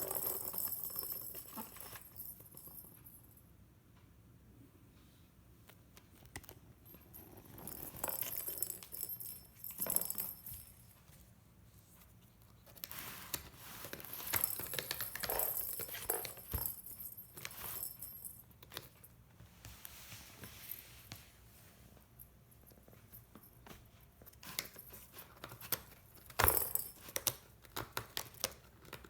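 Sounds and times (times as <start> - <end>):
cat toy jingling and rattling: 0.0 - 3.3, 6.9 - 11.2, 13.0 - 19.0, 24.2 - 27.4.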